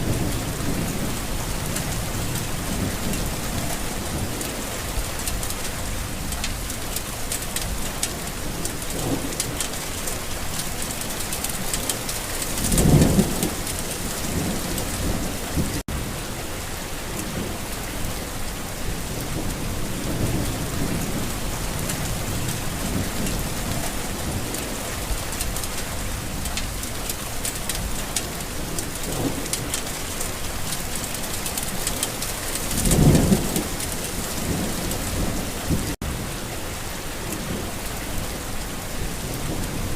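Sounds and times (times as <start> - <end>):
thunder rumbling: 0.0 - 6.7, 7.6 - 16.2, 27.8 - 36.3
steady rain: 0.0 - 39.9.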